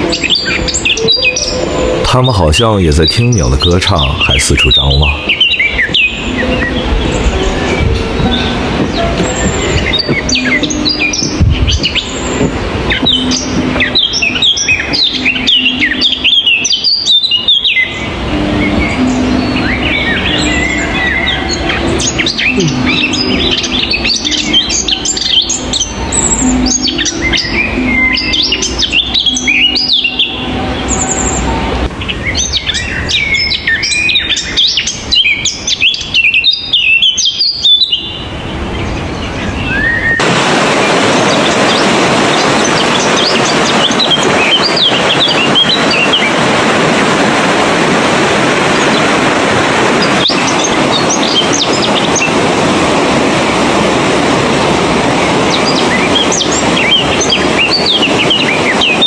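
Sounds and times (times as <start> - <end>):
songbirds chirping and singing: 0.0 - 59.0
steady rushing noise: 0.0 - 59.0.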